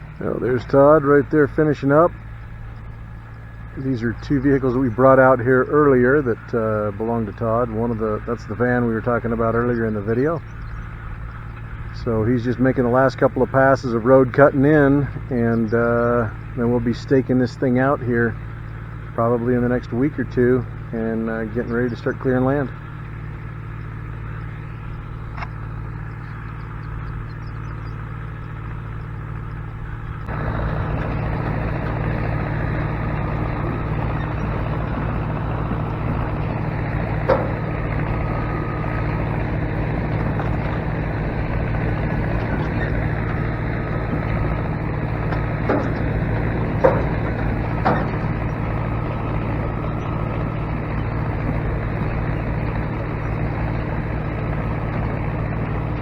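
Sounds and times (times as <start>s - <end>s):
tractor engine running: 0.0s - 56.0s
sharp knocks: 30.3s - 50.5s.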